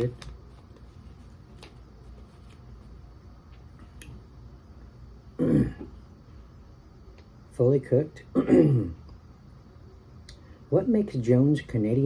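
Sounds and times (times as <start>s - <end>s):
man making throaty vocal noise: 5.4s - 5.9s.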